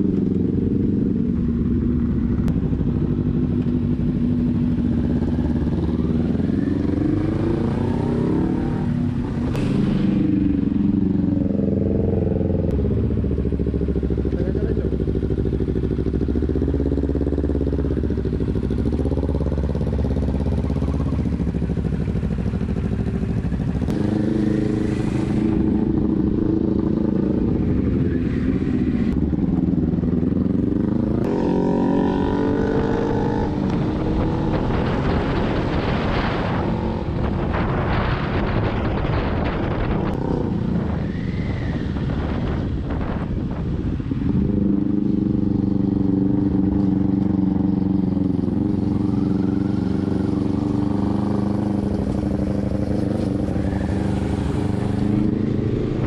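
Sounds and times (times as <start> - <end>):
motorcycle engine: 0.0 - 56.0
wind rush on microphone: 23.8 - 56.0.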